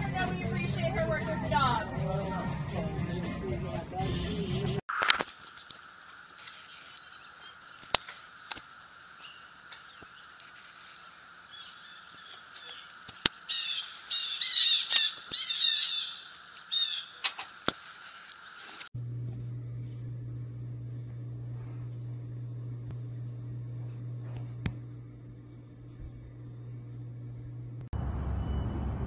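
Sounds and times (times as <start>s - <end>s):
harsh chattering bird calls: 11.5s - 17.4s.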